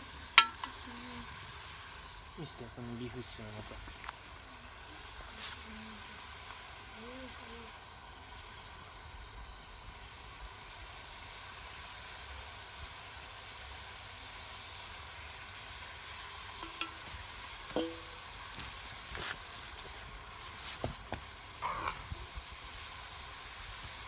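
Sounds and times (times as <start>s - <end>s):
meat sizzling in a pot: 0.0s - 24.0s
utensil clinking against pot: 0.4s - 0.8s, 16.6s - 17.1s, 17.7s - 18.3s.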